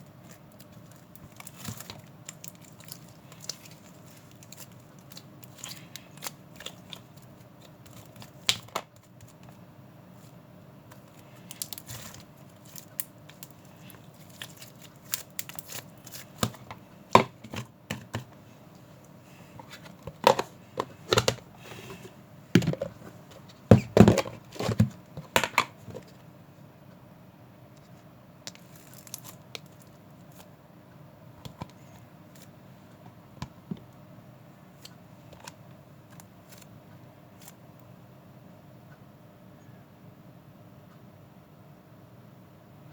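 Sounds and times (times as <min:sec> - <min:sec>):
handling crinkles and rustles: 0:00.0 - 0:09.6, 0:10.2 - 0:26.2, 0:28.5 - 0:30.5, 0:34.8 - 0:36.7
faint steady hum: 0:00.0 - 0:42.9.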